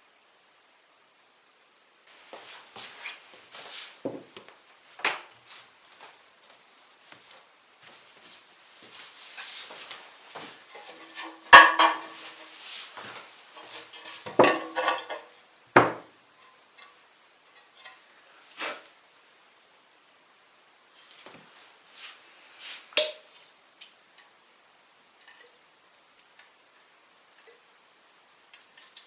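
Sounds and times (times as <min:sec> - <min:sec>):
hard objects knocking and clattering: 0:10.7 - 0:12.5, 0:13.6 - 0:16.1.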